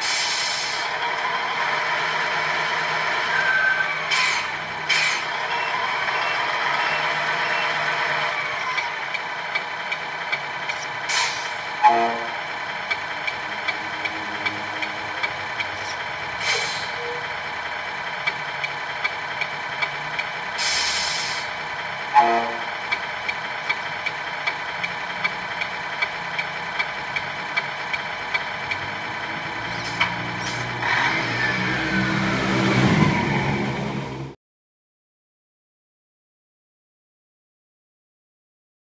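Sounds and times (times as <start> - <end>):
air-release hisses: 0.0 - 0.9, 20.6 - 21.5
simulated diesel engine idling: 0.0 - 30.8
even ticking: 22.8 - 30.4.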